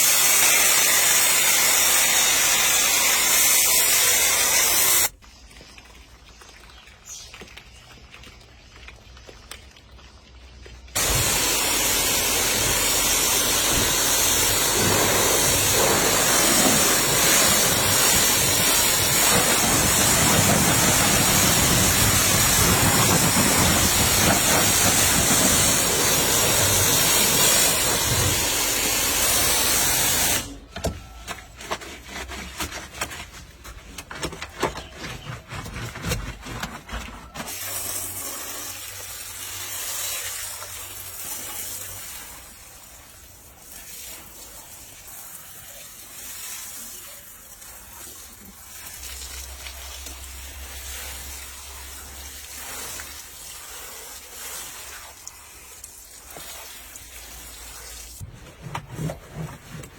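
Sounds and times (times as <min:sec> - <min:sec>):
pressure washer spraying car: 0:00.0 - 0:05.1, 0:11.0 - 0:30.6, 0:37.5 - 0:58.2
water drips: 0:05.1 - 0:11.0.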